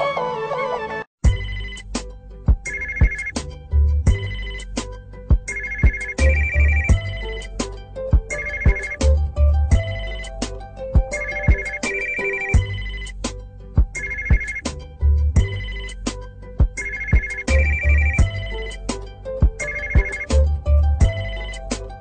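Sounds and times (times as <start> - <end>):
electronic phone ringtone: 2.7 - 3.3, 5.5 - 7.2, 8.3 - 9.0, 11.1 - 13.0, 14.0 - 14.6, 15.4 - 16.0, 16.8 - 18.3, 19.6 - 20.4.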